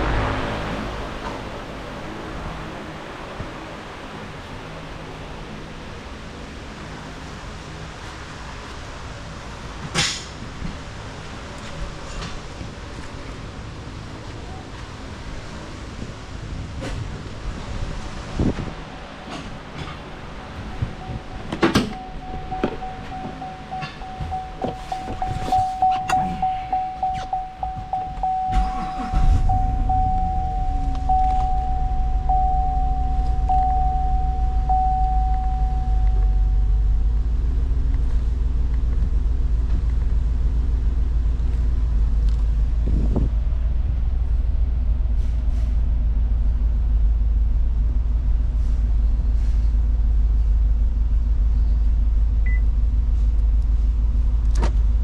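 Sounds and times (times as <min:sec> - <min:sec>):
car engine cranking and idling: 0:00.0 - 0:55.0
dashboard warning chime: 0:20.6 - 0:37.0.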